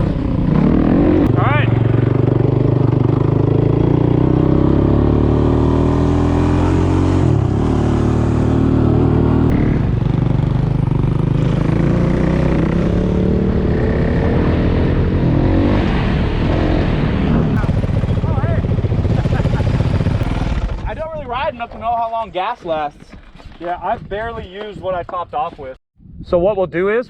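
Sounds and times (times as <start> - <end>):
motorcycle engine revving: 0.0 - 21.1.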